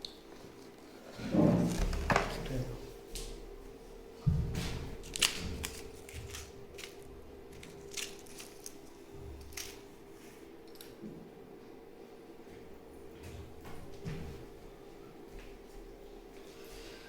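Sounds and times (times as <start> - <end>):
faint steady hum: 0.0 - 17.0
plastic packaging clicks and rustles: 5.0 - 9.9.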